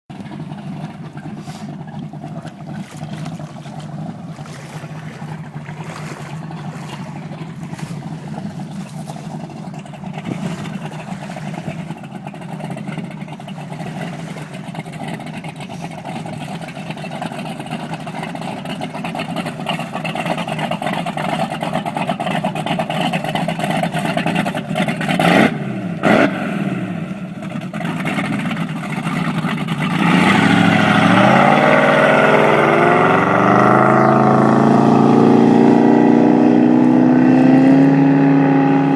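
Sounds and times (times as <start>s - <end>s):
boat engine running: 0.1s - 38.9s
engine throttle revs: 21.1s - 38.9s.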